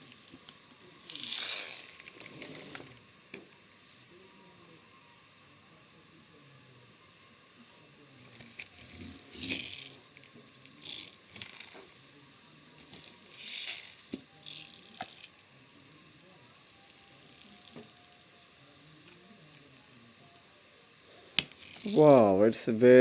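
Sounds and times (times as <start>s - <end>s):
plastic toy trucks rattling: 1.0s - 3.0s, 8.3s - 10.0s, 10.6s - 11.8s, 12.8s - 15.3s.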